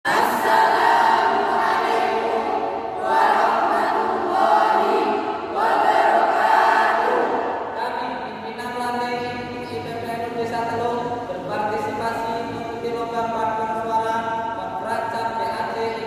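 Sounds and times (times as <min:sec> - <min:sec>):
choir singing a march: 0:00.1 - 0:07.6.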